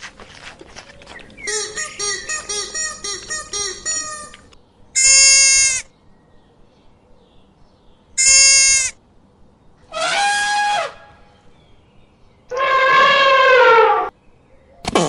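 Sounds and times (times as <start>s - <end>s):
livestock bleating: 5.0s - 5.8s, 8.2s - 8.9s.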